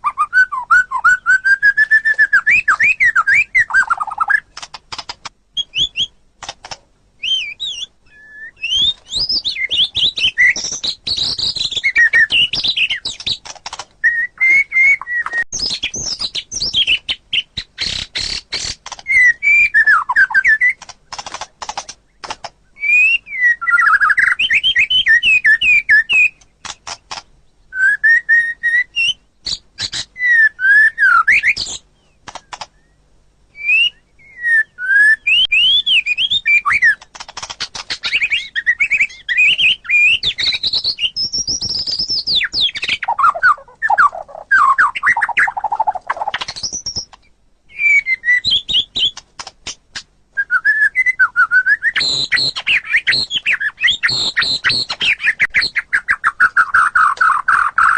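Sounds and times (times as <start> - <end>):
bird whistling song: 0.0 - 4.6, 5.6 - 6.2, 7.2 - 20.9, 22.1 - 49.2, 50.4 - 57.9
sharp bird clicks: 1.0 - 7.9, 8.6 - 27.4, 28.4 - 30.2, 30.8 - 33.0, 35.3 - 50.1, 51.7 - 57.9.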